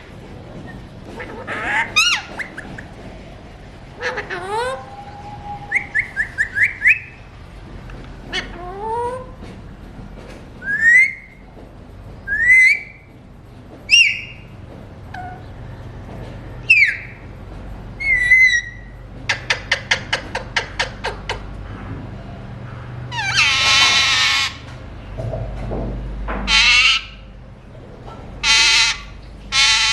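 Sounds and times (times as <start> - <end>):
parakeet whistles: 4.6 - 7.2
parakeet harsh screech: 23.1 - 24.6, 28.4 - 29.9.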